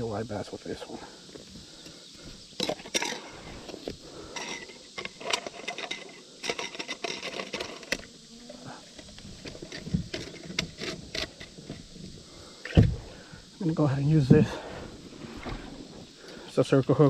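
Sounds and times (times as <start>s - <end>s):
fishing tackle clicks and rustles: 2.5s - 8.2s, 8.9s - 12.7s.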